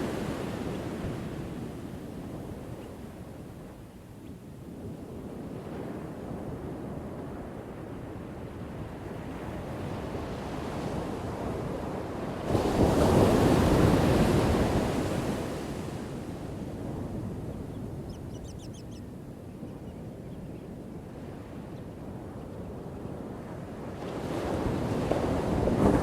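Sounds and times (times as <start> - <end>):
waves washing: 10.4 - 17.2.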